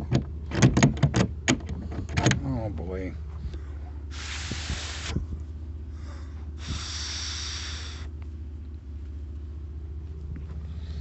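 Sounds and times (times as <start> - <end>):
steady low hum: 0.0 - 11.0
man breathing out heavily: 3.5 - 8.1.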